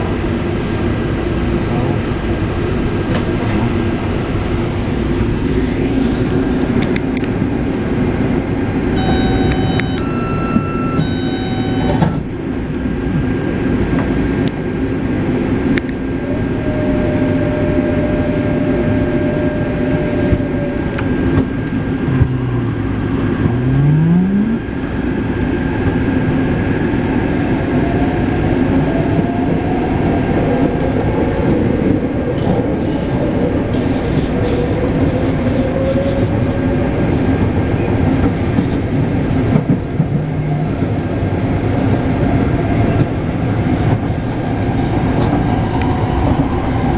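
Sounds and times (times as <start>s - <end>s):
train wheels rumbling on track: 0.0s - 46.9s.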